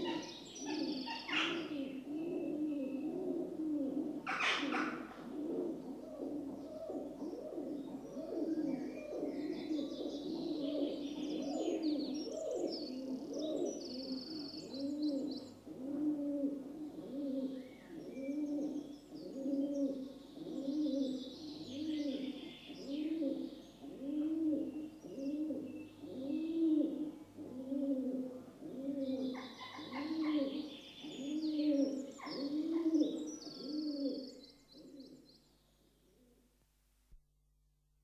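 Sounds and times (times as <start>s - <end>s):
small birds chirping: 0.0s - 3.1s, 6.6s - 15.6s, 17.4s - 27.2s, 28.9s - 36.2s
pigeons cooing: 0.0s - 35.2s.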